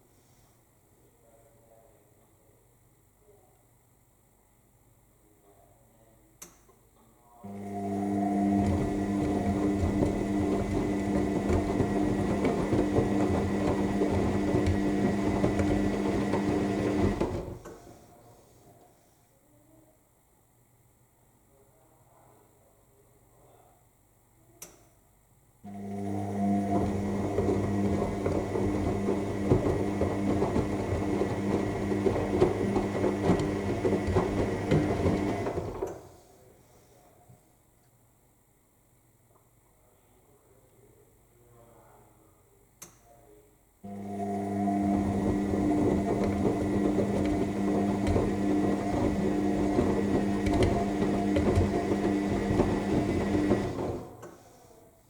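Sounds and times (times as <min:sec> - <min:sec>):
washing machine motor hum: 0:07.4 - 0:17.7, 0:25.7 - 0:36.0, 0:43.8 - 0:54.4
wet laundry tumbling: 0:08.3 - 0:17.6, 0:26.0 - 0:35.8, 0:44.2 - 0:54.1.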